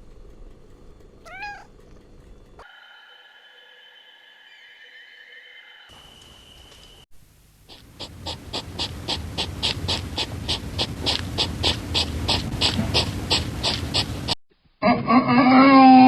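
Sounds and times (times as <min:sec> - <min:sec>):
animal panting: 0:07.6 - 0:14.4.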